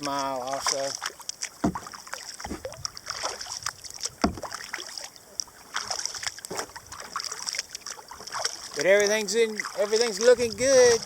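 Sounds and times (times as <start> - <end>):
paddle splashing water: 0.0 - 11.0.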